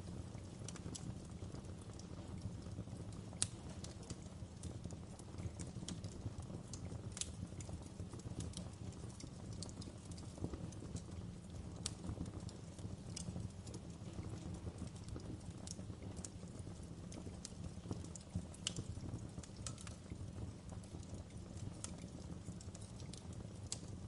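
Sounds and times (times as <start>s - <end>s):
fire crackling and popping: 0.0s - 24.0s
low rumble of flame: 0.0s - 24.0s.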